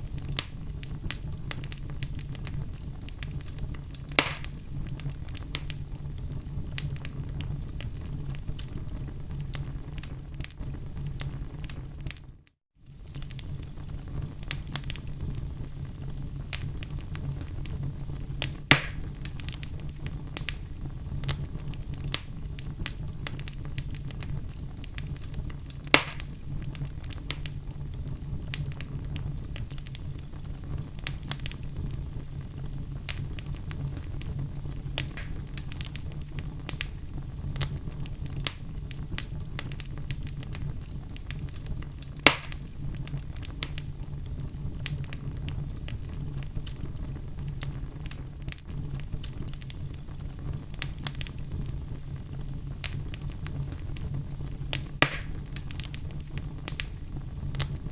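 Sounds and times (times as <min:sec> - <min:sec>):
fire rumbling: 0:00.0 - 0:57.9
wood crackling: 0:00.0 - 0:57.9
logs popping: 0:04.0 - 0:04.6, 0:18.4 - 0:19.7, 0:25.8 - 0:26.4, 0:35.0 - 0:36.1, 0:42.2 - 0:42.7, 0:54.7 - 0:56.0.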